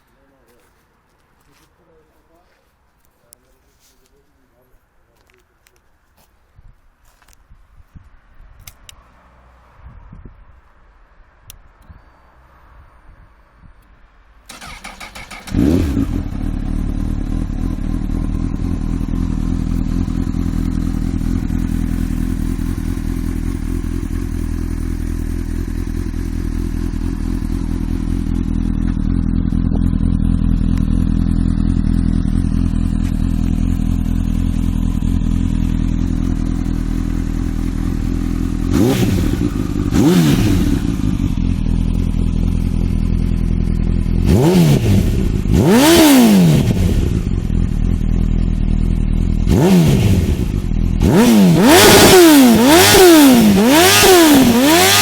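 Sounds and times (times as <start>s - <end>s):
starter motor cranking: 14.5s - 15.8s
motorcycle engine idling and revving: 14.5s - 55.0s.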